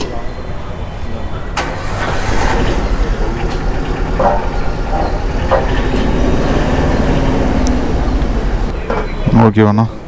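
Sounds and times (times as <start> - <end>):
large vehicle rumbling past: 1.4 - 8.8.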